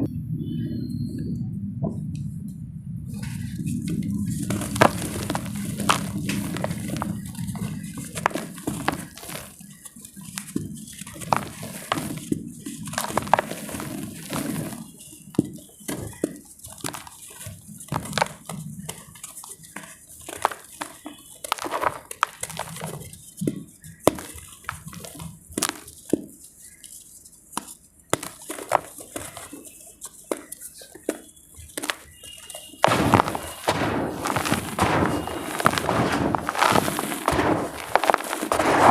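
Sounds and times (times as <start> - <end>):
dry clay crumbling and cracking: 3.2 - 27.0, 27.6 - 38.9
dull thud: 32.8 - 38.9.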